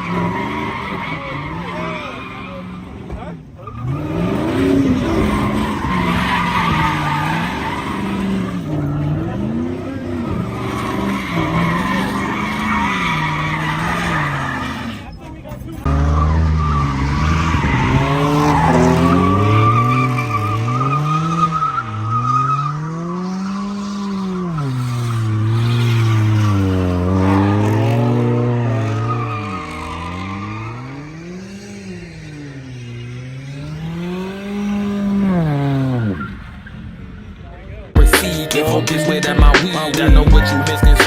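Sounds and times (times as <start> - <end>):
car engine revving hard: 0.0 - 37.2
tires squealing: 0.0 - 41.0.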